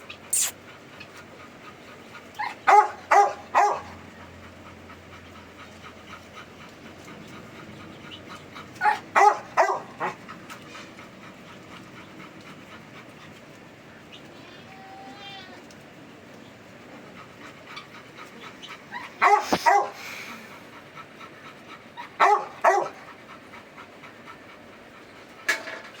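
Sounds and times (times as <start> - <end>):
puppy yipping: 0.3 - 0.5.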